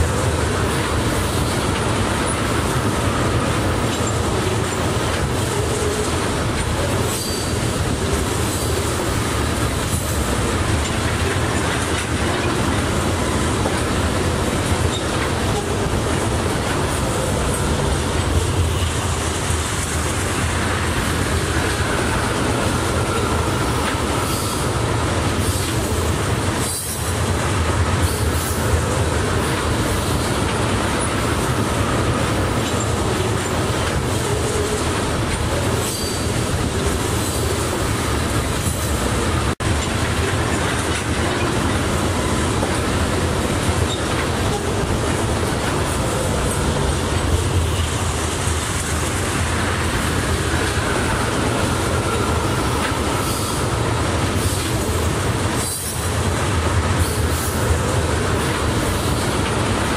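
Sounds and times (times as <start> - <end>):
freight train wheels rumbling: 0.0 - 59.9
wheels clacking over rail joints: 0.0 - 59.9
faint wheel squeal: 7.1 - 7.7, 35.8 - 36.4.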